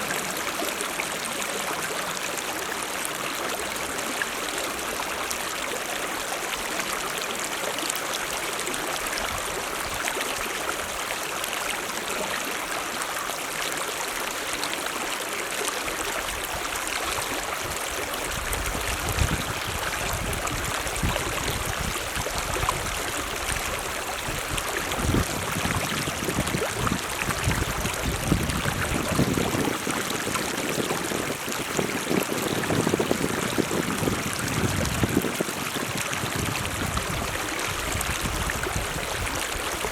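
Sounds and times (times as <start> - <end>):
stream rushing water: 0.0 - 39.9.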